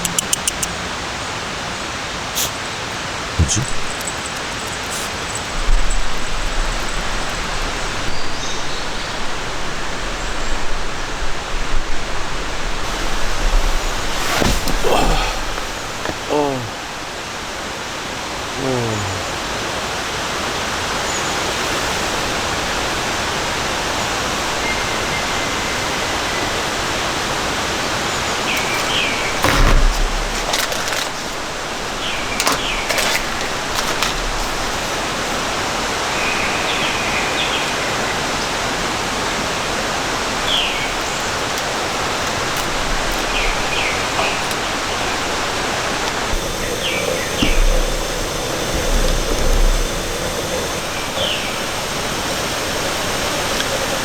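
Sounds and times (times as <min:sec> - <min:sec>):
steady rain falling: 0:01.0 - 0:54.0
low thump: 0:46.4 - 0:51.0.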